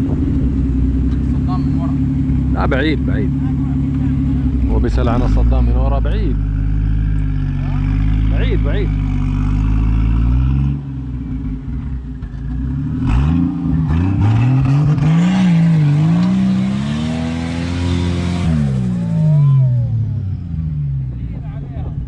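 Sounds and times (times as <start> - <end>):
engine revving hard: 12.6 - 20.3.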